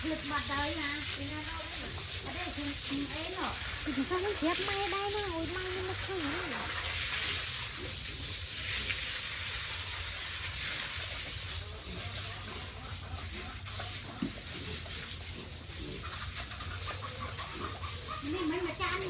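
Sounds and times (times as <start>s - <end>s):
hose spraying water: 0.0s - 19.0s.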